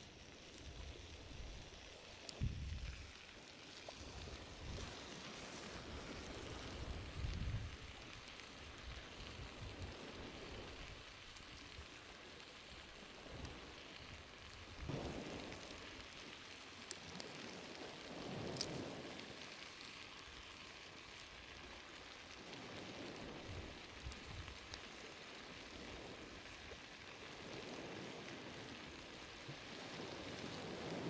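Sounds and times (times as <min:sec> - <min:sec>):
campfire crackling and hissing: 0:00.0 - 0:31.0
sharp pops of fire: 0:13.2 - 0:31.0.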